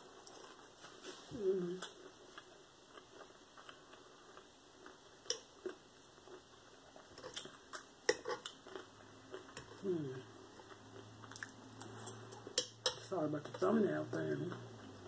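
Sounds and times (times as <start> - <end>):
chewing clicks and smacks: 10.6 - 12.5.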